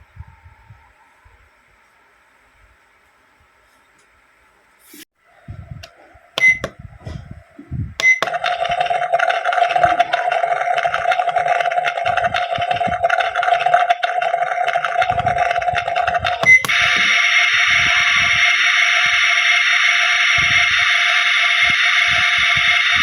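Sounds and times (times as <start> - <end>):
electronic button beeps: 6.4 - 6.8, 8.0 - 8.3
toy handling clicks and knocks: 8.0 - 19.2
electronic cooking sound effect: 8.0 - 23.0.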